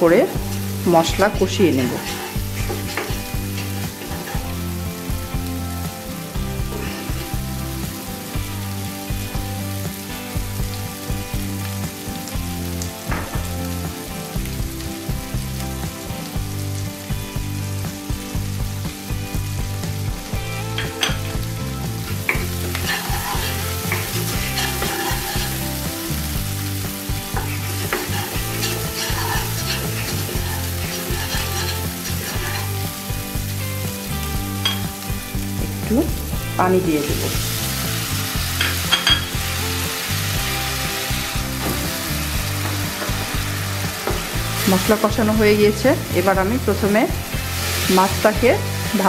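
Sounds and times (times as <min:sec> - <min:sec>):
spice paste sizzling in oil: 0:00.0 - 0:49.0
wooden spoon scraping a pan: 0:00.2 - 0:05.0, 0:06.5 - 0:07.3, 0:22.0 - 0:33.3.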